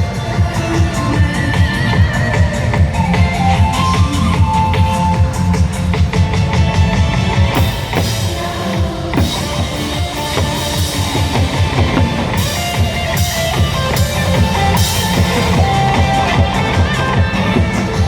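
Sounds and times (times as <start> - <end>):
drum kit beat: 0.0 - 18.0
guitar melody: 9.2 - 18.0.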